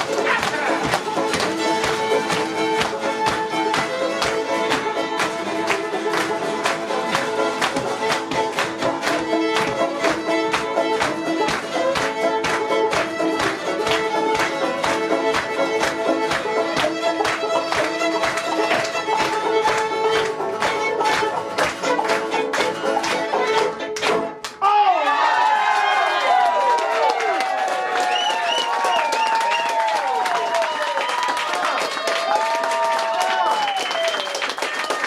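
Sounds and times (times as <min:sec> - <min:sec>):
fiddle melody: 0:00.0 - 0:24.5
strummed string rhythm: 0:00.0 - 0:24.6.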